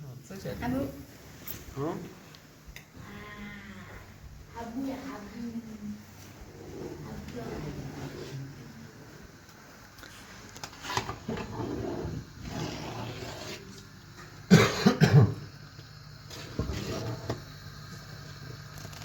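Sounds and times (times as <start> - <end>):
person coughing: 14.5 - 15.4.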